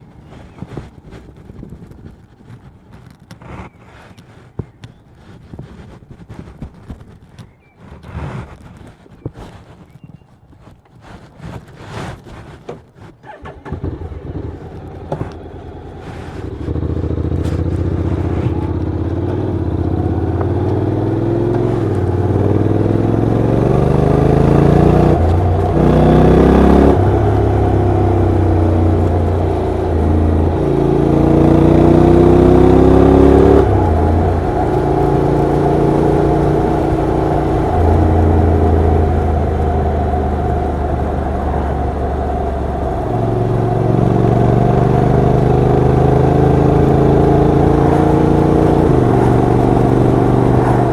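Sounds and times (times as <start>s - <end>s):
motorcycle engine accelerating: 13.2s - 50.9s.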